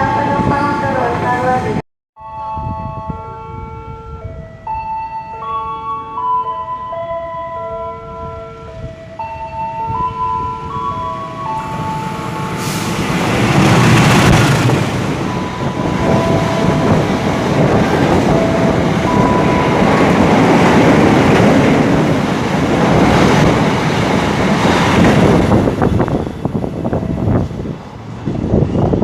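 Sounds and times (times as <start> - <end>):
train wheels rumbling on rail: 9.9 - 29.0.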